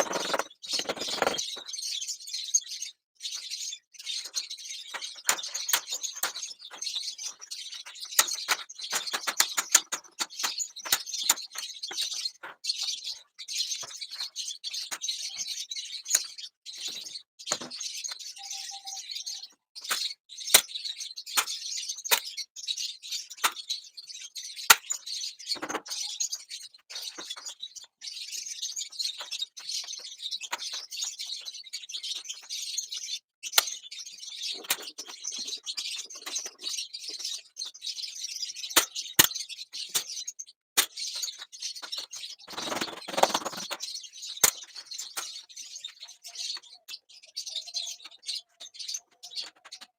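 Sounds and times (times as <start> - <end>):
sharp clicks: 0.0 - 1.4
small birds chirping: 0.0 - 49.9.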